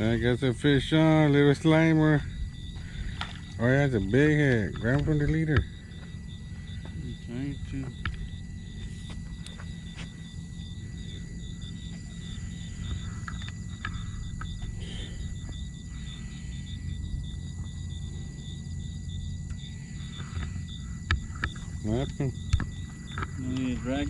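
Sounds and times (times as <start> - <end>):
crickets chirping: 0.0 - 24.0
low rumble: 0.0 - 24.0.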